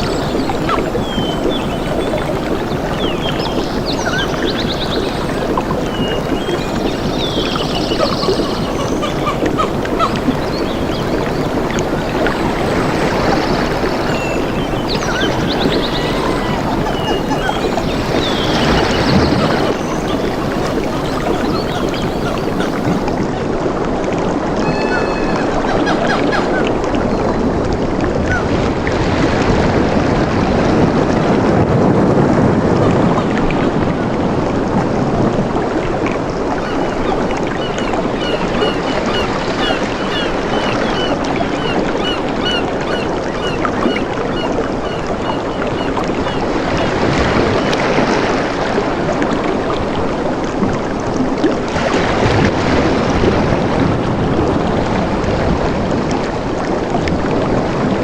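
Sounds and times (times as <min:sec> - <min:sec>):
bird chirping: 0:00.0 - 0:23.1, 0:36.6 - 0:41.1
rushing water: 0:00.0 - 0:58.0.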